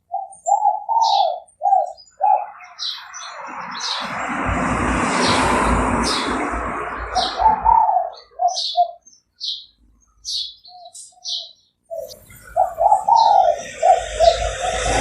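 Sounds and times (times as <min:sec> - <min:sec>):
dove cooing: 0:00.0 - 0:02.7, 0:07.1 - 0:09.0, 0:10.8 - 0:15.0
small birds chirping: 0:00.0 - 0:04.3, 0:05.1 - 0:15.0.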